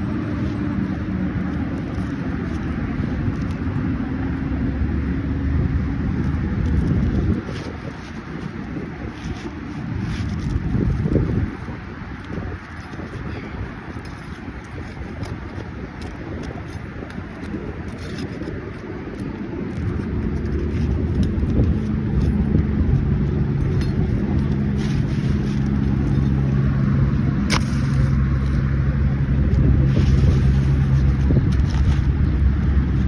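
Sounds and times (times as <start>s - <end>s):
engine humming: 0.0s - 15.9s, 17.4s - 33.0s.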